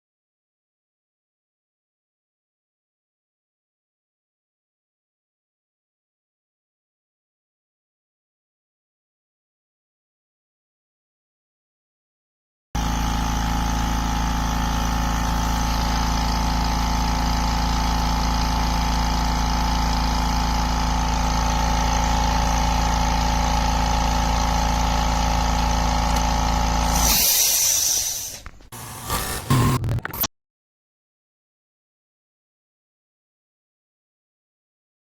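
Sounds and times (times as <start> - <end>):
air compressor motor humming: 12.8 - 30.2
air hiss: 26.9 - 28.5.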